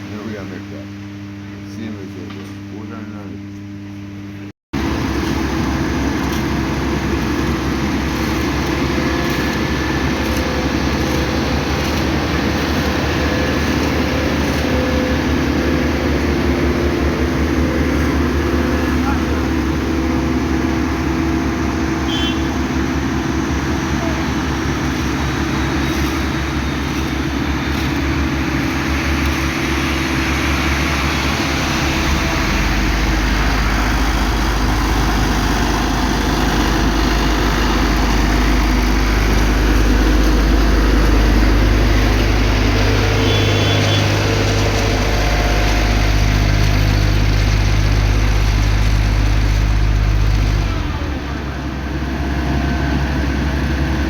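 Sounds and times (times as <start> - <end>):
vehicle engine running: 4.7 - 54.0
constant rushing noise: 23.0 - 32.8.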